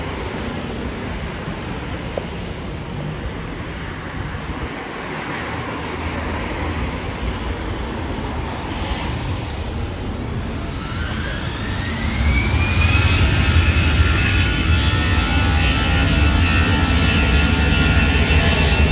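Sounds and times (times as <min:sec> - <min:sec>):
engine fan whine: 0:00.0 - 0:18.9
jet engines rushing: 0:00.0 - 0:18.9.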